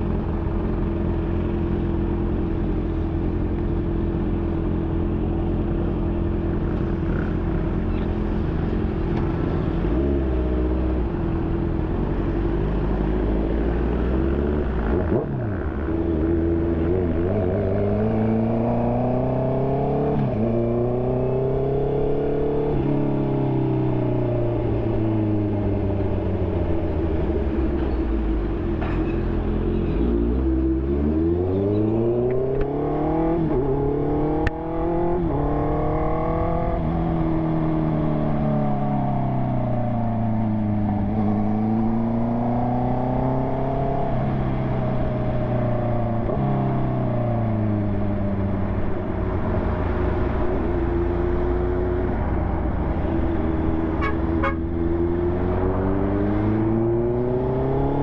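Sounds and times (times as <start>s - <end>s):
motorcycle engine revving: 12.2s - 27.0s, 30.2s - 58.0s.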